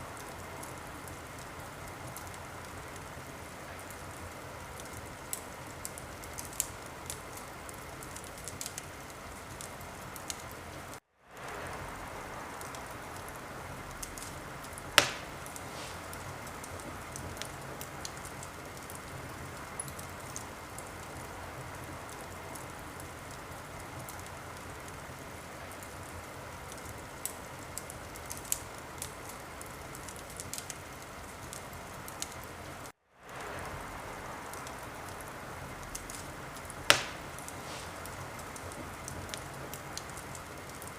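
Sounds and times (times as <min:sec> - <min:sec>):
loud crack of fire: 0:00.0 - 0:40.9
wood fire crackling: 0:00.0 - 0:40.9.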